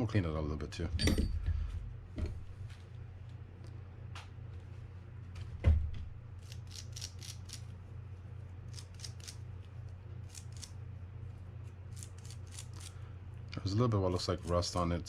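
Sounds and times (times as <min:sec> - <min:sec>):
steady low hum: 0:00.0 - 0:15.0
thump: 0:05.6 - 0:06.2.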